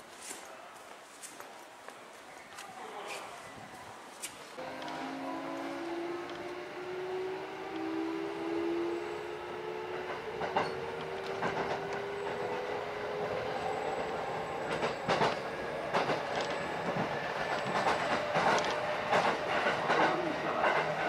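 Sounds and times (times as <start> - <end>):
train motor whine: 4.6 - 19.6
wheels clacking over rail joints: 4.6 - 21.0.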